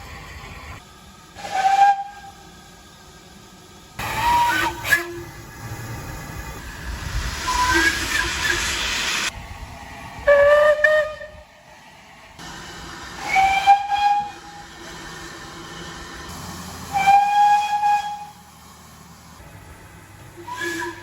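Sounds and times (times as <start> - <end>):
loud steam hiss: 0.0 - 2.8, 3.5 - 21.0
steam locomotive whistle blasts: 1.4 - 2.4, 4.0 - 5.3, 7.5 - 8.8, 10.3 - 11.4, 13.2 - 14.6, 16.9 - 18.4, 20.4 - 21.0.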